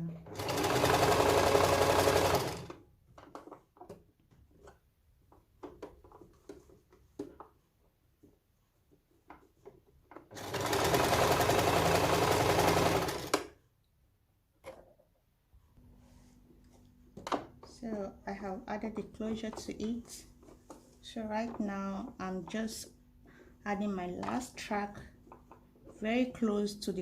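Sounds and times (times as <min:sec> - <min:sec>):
sewing machine running: 0:00.3 - 0:02.8, 0:10.3 - 0:13.5.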